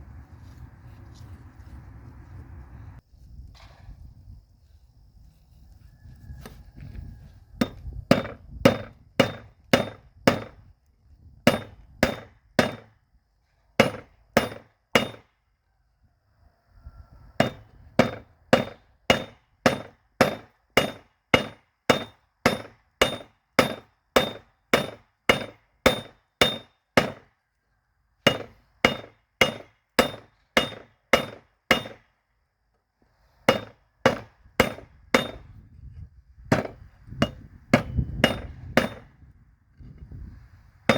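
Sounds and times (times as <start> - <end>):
hammer striking spike on anvil: 17.4 - 27.2, 28.3 - 32.0, 36.5 - 39.1.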